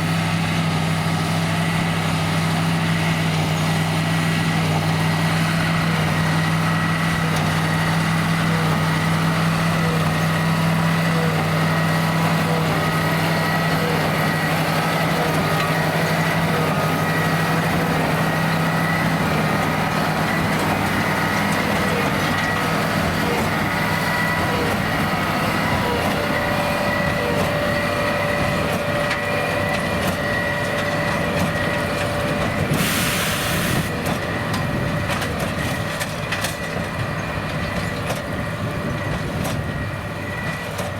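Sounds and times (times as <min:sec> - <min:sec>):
tractor diesel engine under load: 0:00.0 - 0:40.9
short hiss: 0:32.8 - 0:33.9.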